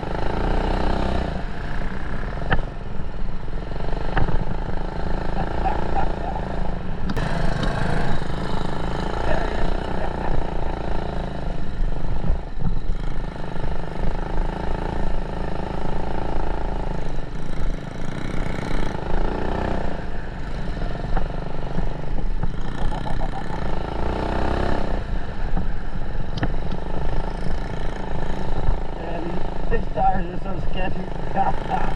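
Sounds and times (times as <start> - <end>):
small motorbike engine running: 0.0 - 31.9.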